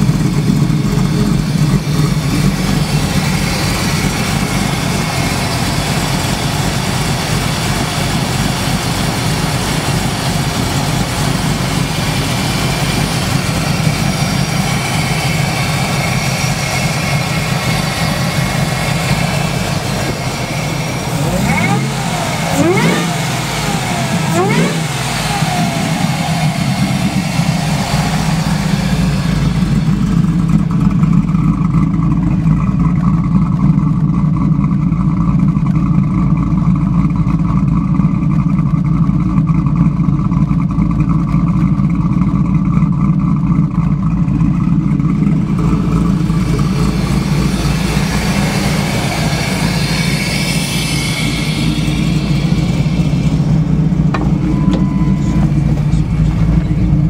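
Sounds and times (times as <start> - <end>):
car engine droning: 0.0 - 57.0
high hiss and rush: 46.8 - 53.8.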